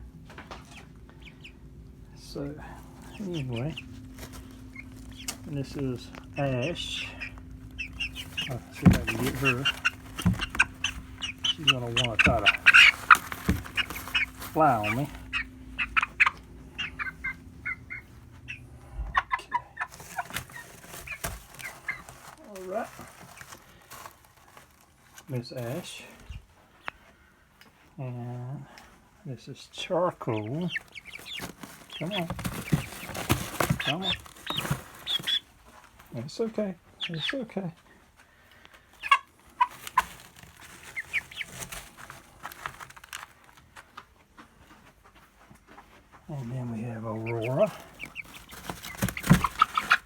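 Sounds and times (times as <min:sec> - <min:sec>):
chickens peeping: 0:00.0 - 0:50.0
scratching and rustling clicks: 0:03.8 - 0:17.8, 0:19.9 - 0:25.3, 0:30.7 - 0:36.1, 0:39.3 - 0:44.0, 0:47.4 - 0:50.0.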